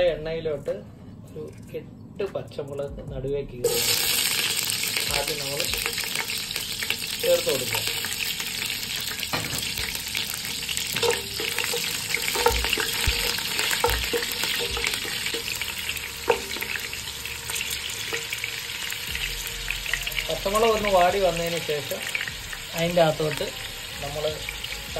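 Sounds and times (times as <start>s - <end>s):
chillies sizzling in hot oil: 3.6s - 24.9s
spatula knocking against pot: 11.0s - 15.5s.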